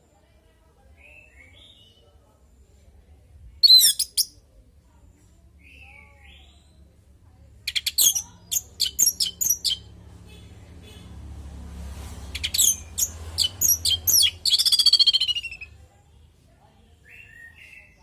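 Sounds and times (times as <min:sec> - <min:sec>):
thrush calling: 0:07.7 - 0:09.9, 0:12.3 - 0:15.7.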